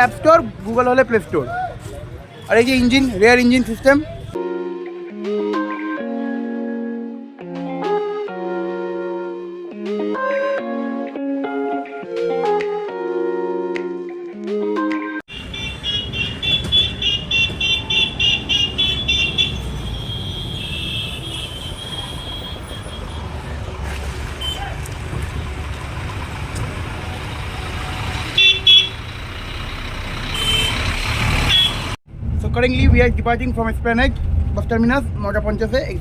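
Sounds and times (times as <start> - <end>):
bus engines and traffic rumble: 0.0 - 4.4, 15.3 - 36.0
vehicle horns tooting: 15.3 - 25.7, 26.3 - 32.0.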